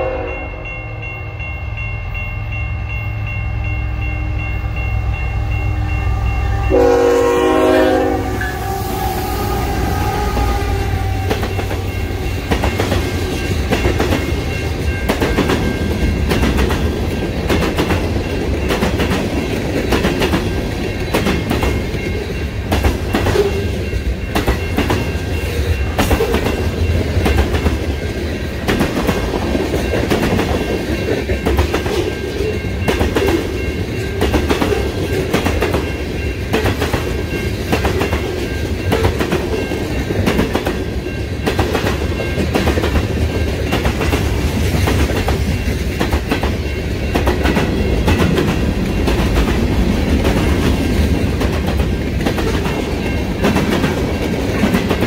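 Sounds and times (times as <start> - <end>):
low train rumble: 0.0 - 55.0
train wheels clicking over rail joints: 10.2 - 55.0.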